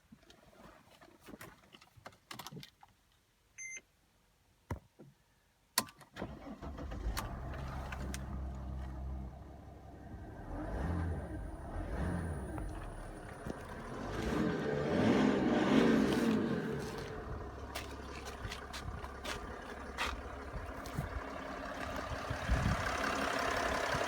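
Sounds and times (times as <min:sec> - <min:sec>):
short beep: 0:03.6 - 0:03.8
car engine starting and idling: 0:06.2 - 0:24.0.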